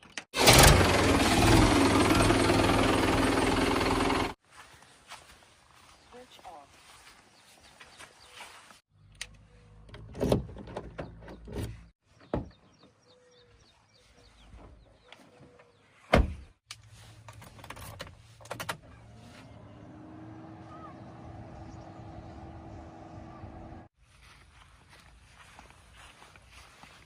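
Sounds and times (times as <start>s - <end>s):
diesel engine running: 0.4s - 4.4s, 18.8s - 23.9s.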